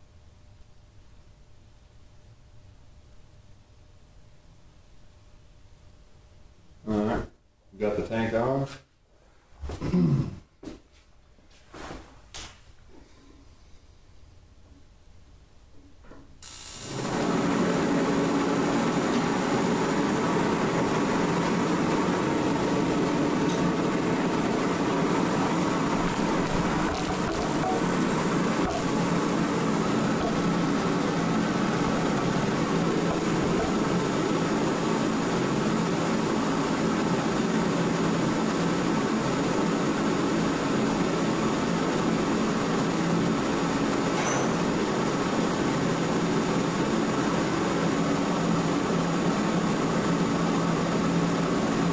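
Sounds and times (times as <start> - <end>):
propane heater rushing: 16.8 - 51.9.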